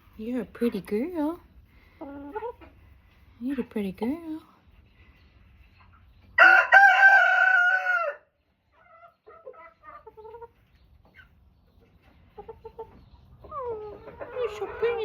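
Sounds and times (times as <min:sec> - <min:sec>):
chickens clucking: 0:00.0 - 0:15.0
rooster crowing: 0:06.4 - 0:08.3.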